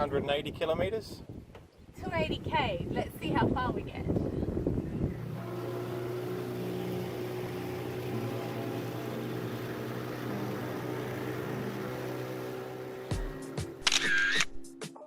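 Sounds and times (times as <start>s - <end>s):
outboard motor running: 4.1s - 13.8s.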